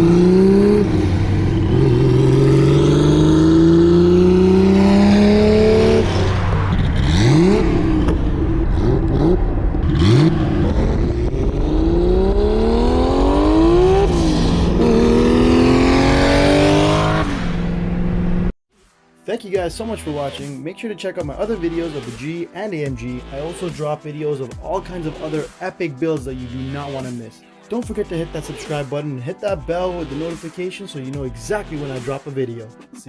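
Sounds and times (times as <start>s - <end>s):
car engine accelerating hard: 0.0s - 18.5s.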